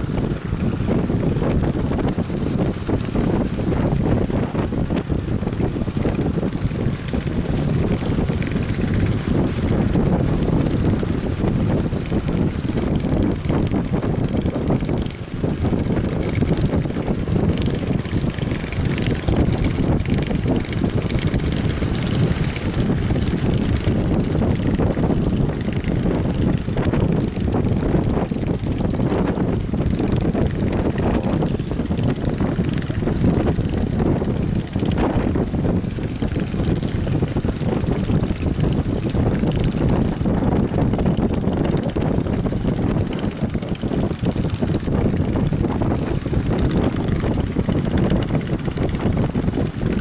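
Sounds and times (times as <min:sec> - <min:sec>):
wind buffeting microphone: 0:00.0 - 0:50.0.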